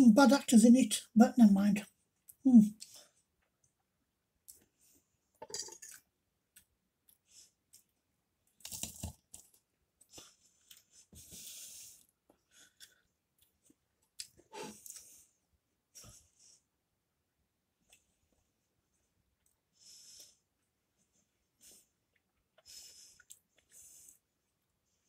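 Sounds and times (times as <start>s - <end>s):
chewing and crunching pastry: 5.8s - 15.2s, 21.6s - 24.3s.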